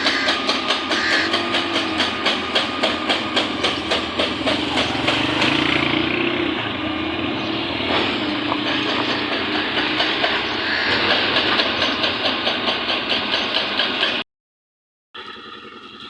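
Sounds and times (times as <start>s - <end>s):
heavy construction machinery: 0.0s - 14.2s
rhythmic mechanical clatter: 0.0s - 14.2s.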